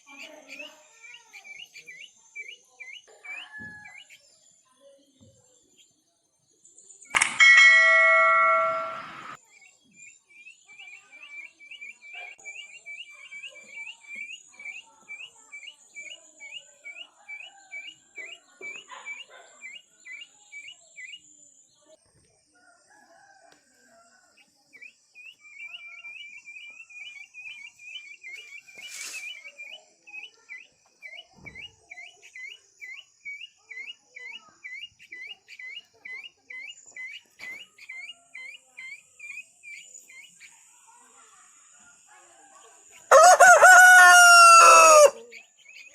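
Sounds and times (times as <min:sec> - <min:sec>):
sharp click: 0:07.2 - 0:09.4
short high chirps: 0:07.2 - 0:09.4
rooster crowing: 0:43.1 - 0:45.2.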